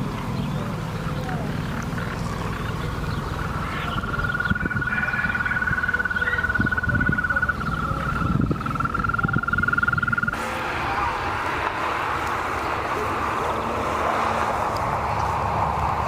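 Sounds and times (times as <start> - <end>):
frog trilling: 1.9 - 10.4.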